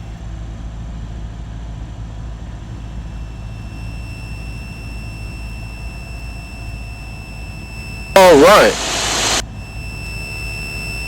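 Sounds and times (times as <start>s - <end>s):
light aircraft piston engine droning: 2.7s - 11.0s
thin steady high tone: 2.9s - 11.0s
air noise hiss: 8.2s - 9.4s.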